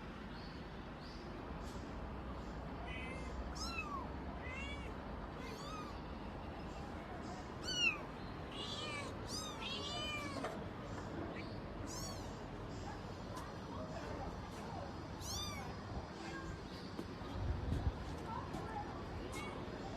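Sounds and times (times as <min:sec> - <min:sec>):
kittens mewing: 0:02.8 - 0:06.2, 0:07.6 - 0:10.6, 0:11.3 - 0:12.8, 0:15.2 - 0:15.8.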